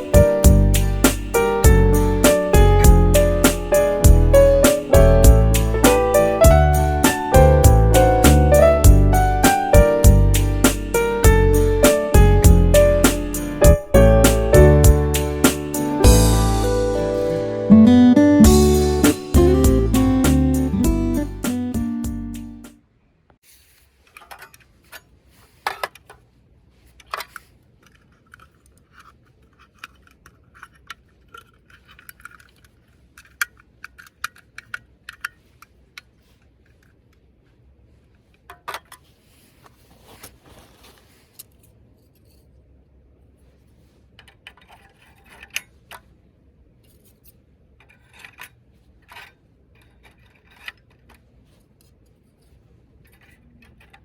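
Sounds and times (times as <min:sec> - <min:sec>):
hard objects clicking and scraping: 0:26.9 - 0:37.0, 0:46.8 - 0:54.0.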